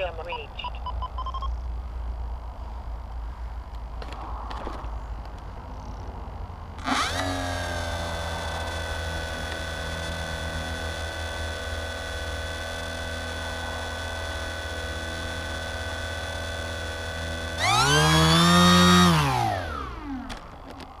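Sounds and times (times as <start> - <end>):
electric motor and propeller whine: 5.7 - 21.0.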